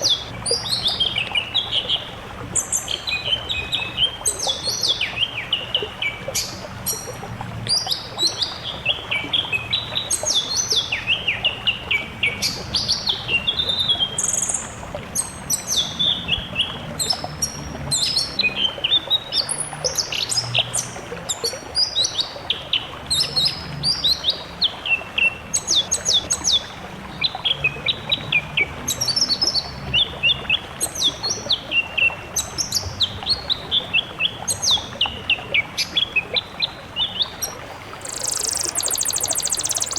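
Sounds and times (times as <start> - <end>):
songbirds singing: 37.6 - 39.9.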